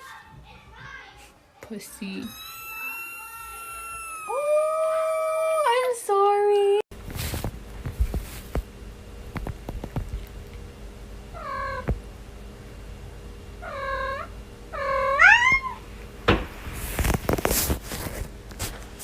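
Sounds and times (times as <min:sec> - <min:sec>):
cat meowing: 0:02.3 - 0:05.5, 0:13.6 - 0:15.8
rustling and scuffling: 0:07.0 - 0:08.7, 0:16.3 - 0:19.0.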